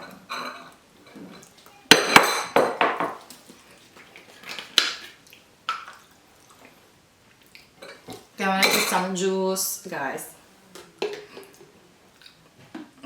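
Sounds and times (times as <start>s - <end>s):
dishes and glassware clinking: 0.0s - 3.2s, 7.8s - 9.1s.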